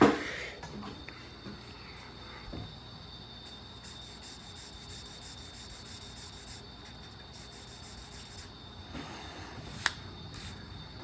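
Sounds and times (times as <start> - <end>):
faint high whine: 0.0 - 11.0
marker scratching on paper: 3.4 - 8.6, 10.4 - 10.7.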